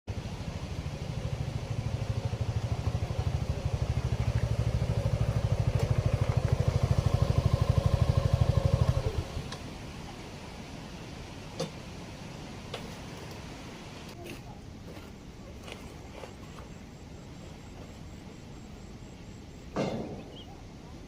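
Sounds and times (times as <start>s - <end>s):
motorcycle engine idling: 0.1s - 9.6s.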